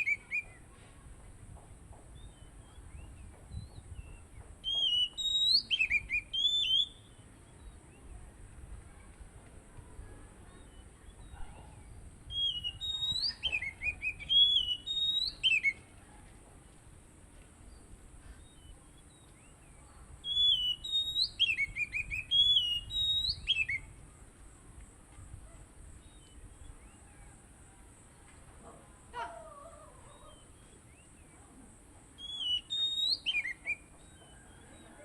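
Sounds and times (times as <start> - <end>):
bird singing whistled notes: 0.0 - 0.6, 2.1 - 8.1, 10.6 - 15.9, 17.7 - 24.2, 32.2 - 35.0.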